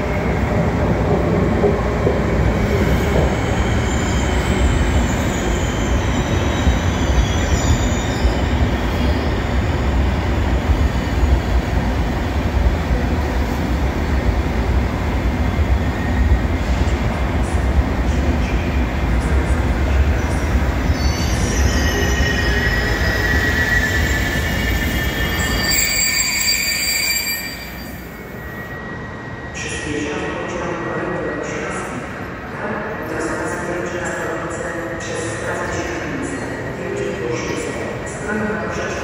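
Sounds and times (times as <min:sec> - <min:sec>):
train wheels rumbling on rails: 0:00.0 - 0:26.1
faint high squealing: 0:20.8 - 0:29.5.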